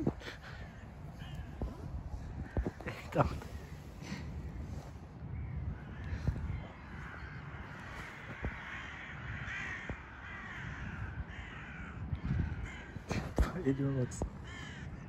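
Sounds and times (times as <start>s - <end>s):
birds calling: 0.0s - 15.0s.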